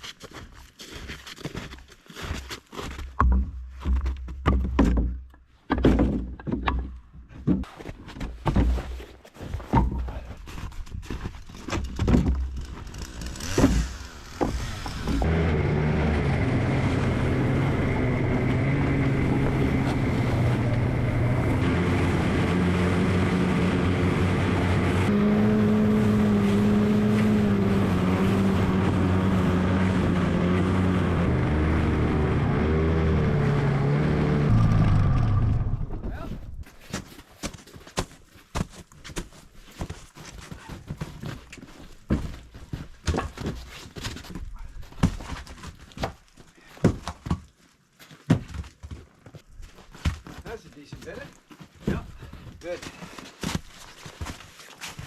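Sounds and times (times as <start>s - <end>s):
knocks and clatter: 3.0s - 9.0s, 9.6s - 15.4s, 40.9s - 46.2s
small engine running: 12.6s - 35.7s.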